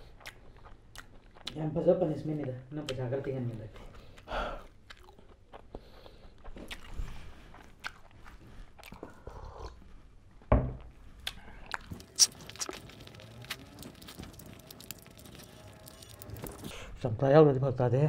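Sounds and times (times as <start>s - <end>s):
close-up chewing and biting: 0.0s - 16.9s
knock: 10.5s - 10.8s
small wet mouth clicks: 11.2s - 13.1s.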